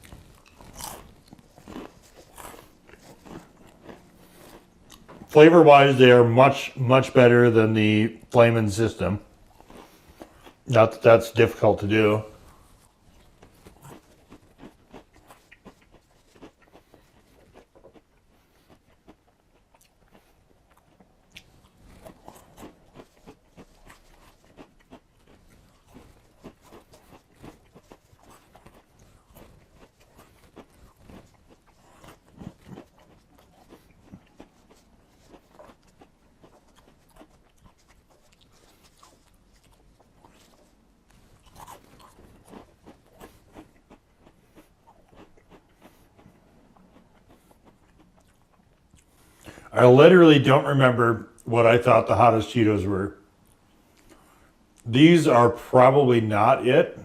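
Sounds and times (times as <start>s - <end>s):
chewing crunchy snacks: 0.0s - 7.6s, 8.2s - 49.8s, 53.3s - 55.4s.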